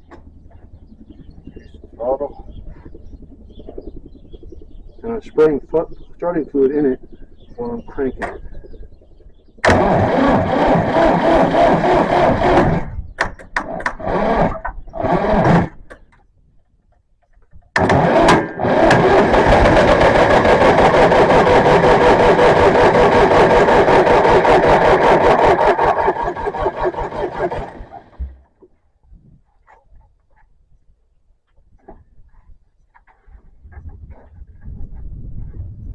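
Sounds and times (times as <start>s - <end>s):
tractor engine cranking and sputtering: 0.0s - 1.9s, 7.0s - 28.7s.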